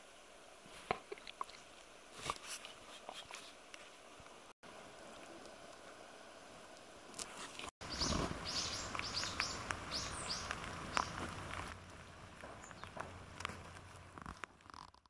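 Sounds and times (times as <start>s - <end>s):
low outdoor background: 0.0s - 15.0s
songbirds chirping: 7.8s - 14.1s.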